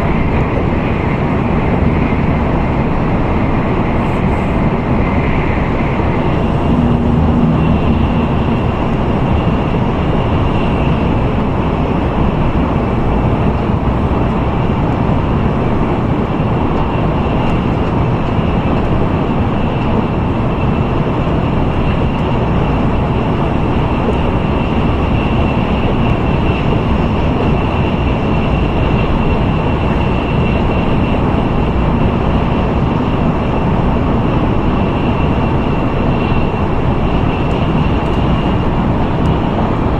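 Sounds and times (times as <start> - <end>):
train wheels and air rushing: 0.0 - 39.9.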